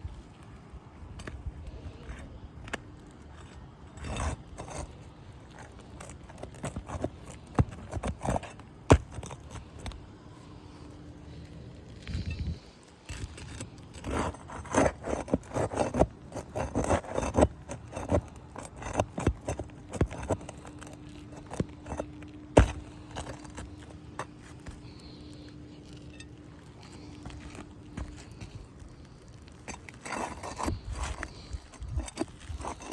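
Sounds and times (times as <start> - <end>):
metal scraping clicking and clinking: 11.3 - 32.9.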